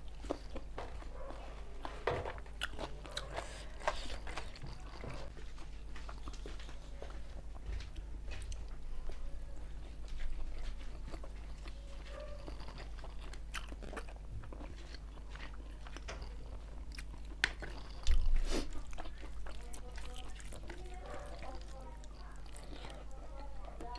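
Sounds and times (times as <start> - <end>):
low steady hum: 0.0 - 23.9
chewing with wet mouth clicks: 2.4 - 5.4, 10.0 - 23.9
food crunches: 12.3 - 23.0.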